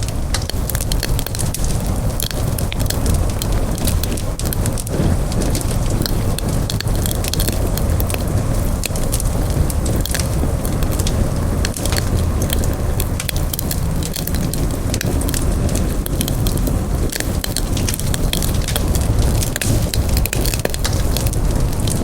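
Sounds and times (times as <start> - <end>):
campfire crackling and popping: 0.0 - 22.0
low rumble of flames: 0.0 - 22.0.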